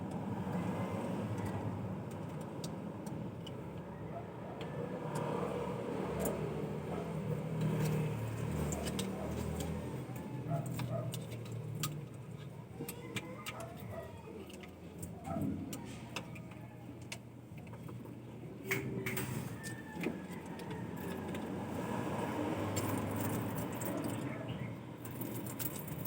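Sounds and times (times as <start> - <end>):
vehicle engine humming: 0.0 - 26.0
metallic clicks and clinks: 6.1 - 17.8, 22.6 - 26.0.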